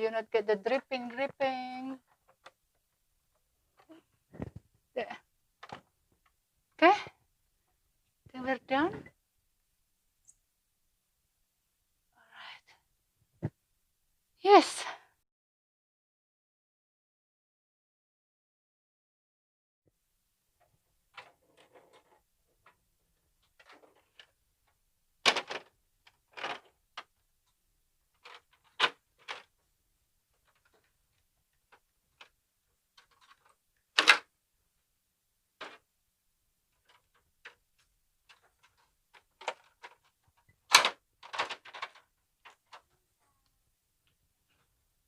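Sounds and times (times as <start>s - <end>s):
hard objects knocking and clattering: 4.2s - 4.8s.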